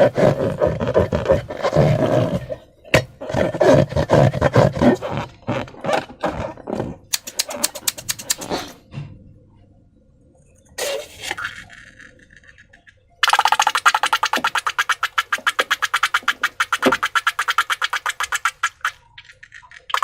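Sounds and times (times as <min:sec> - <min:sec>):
slime squelching: 0:13.2 - 0:20.0.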